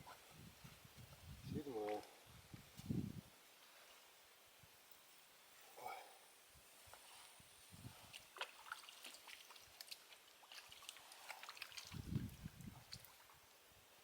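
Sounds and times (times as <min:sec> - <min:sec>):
water dripping and splashing: 0:07.9 - 0:13.6.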